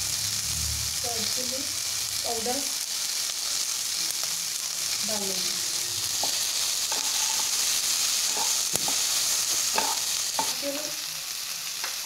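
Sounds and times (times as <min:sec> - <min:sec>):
vegetables sizzling in hot oil: 0:00.0 - 0:12.0
wooden spatula scraping pan: 0:06.2 - 0:07.6, 0:08.3 - 0:10.5.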